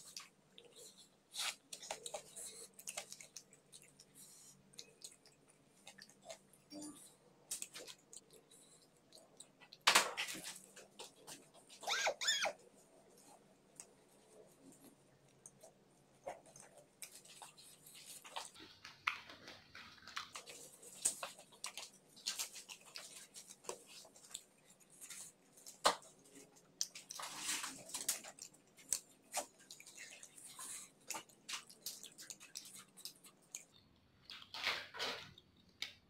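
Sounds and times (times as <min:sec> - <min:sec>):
food crunching: 0:00.0 - 0:11.9, 0:12.6 - 0:36.0
wet chewing and lip smacks: 0:00.0 - 0:36.0.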